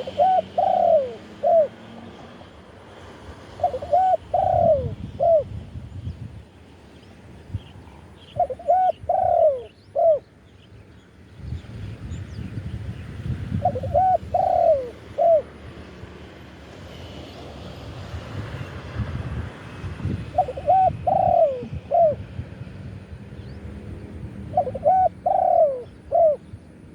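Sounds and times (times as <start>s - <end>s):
dove cooing: 0.0s - 2.5s, 3.4s - 5.5s, 7.9s - 10.3s, 13.5s - 15.6s, 20.3s - 22.5s, 24.4s - 26.9s.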